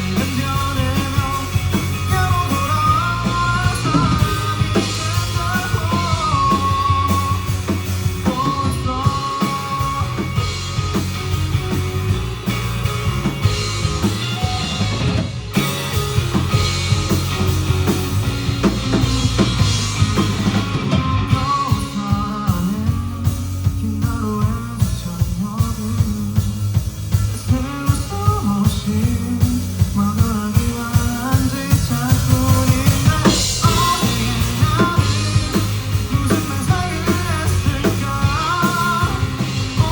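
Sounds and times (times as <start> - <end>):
person singing: 0.0 - 11.0, 18.6 - 39.9
drum kit beat: 0.0 - 39.9
rock band playing live: 0.0 - 39.9.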